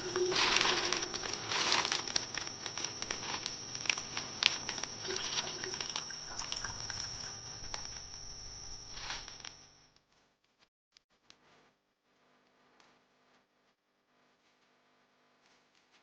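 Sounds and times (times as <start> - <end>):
crinkling rustling handling: 0.0 - 9.5
faint high-pitched whine: 0.0 - 10.0.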